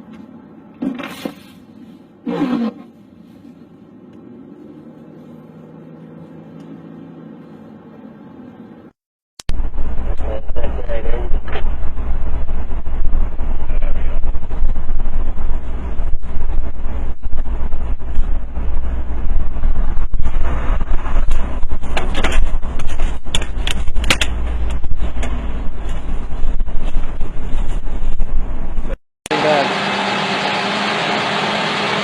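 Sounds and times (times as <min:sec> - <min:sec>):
vehicle road and wind rumble: 0:00.0 - 0:29.0.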